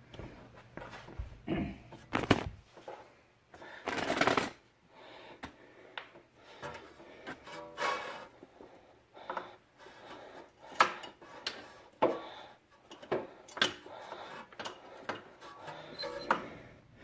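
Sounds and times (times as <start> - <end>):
metal wrench clinking and scraping: 15.5 - 16.6.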